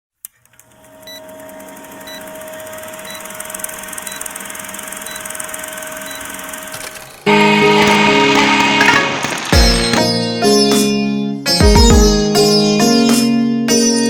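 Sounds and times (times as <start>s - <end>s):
timer beeping: 0.7s - 8.2s.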